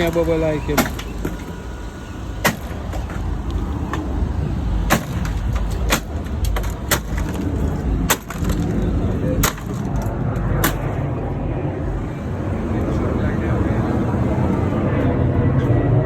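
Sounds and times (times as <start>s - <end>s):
low machinery rumble: 0.0s - 16.0s
metal knocks and clanks: 2.4s - 11.1s.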